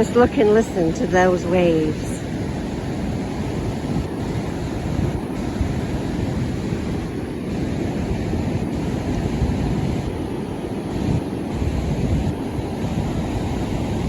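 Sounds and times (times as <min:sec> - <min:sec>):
waves breaking on shore: 0:00.0 - 0:14.0.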